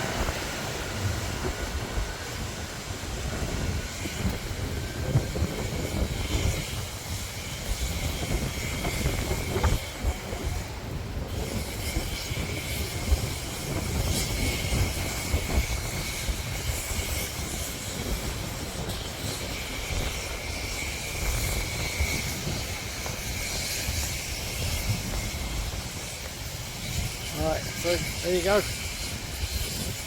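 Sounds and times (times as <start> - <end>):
wind buffeting microphone: 0.0 - 30.0
steady hiss: 11.4 - 30.0.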